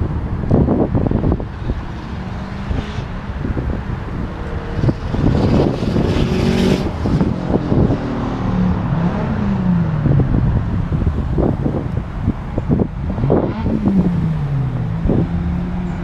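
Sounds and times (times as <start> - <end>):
car engine revving past: 4.2 - 9.8.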